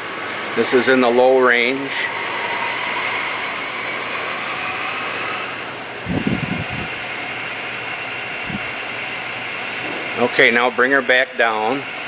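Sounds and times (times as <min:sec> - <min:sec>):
lathe running with whining hum: 0:00.0 - 0:12.0.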